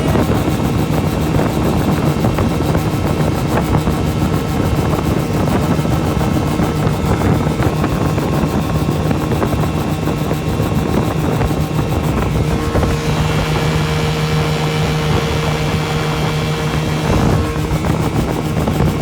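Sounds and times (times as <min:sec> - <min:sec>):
outboard motor running: 0:00.0 - 0:19.0
rushing wind: 0:00.0 - 0:19.0
water noise: 0:10.3 - 0:19.0.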